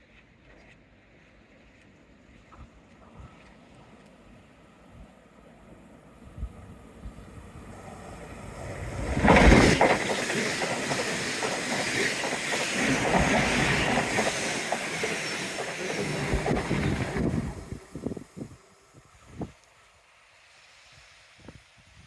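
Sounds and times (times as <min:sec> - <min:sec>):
train wheels clattering: 0:08.9 - 0:17.7.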